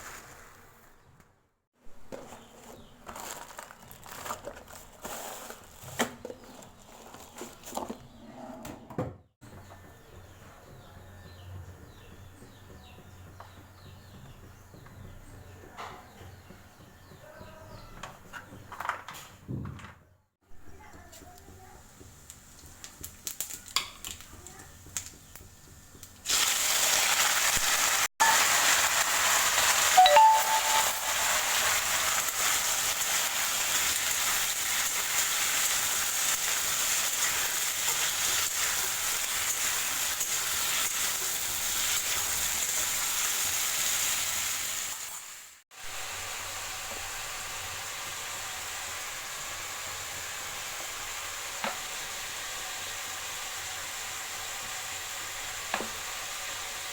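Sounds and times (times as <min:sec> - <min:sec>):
food sizzling in hot oil: 0:21.8 - 0:24.3, 0:24.9 - 0:56.9.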